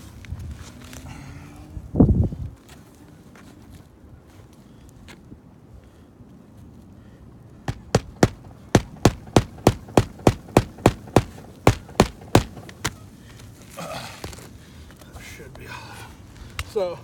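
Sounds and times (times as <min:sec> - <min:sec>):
hammer striking nails: 0:07.7 - 0:13.0.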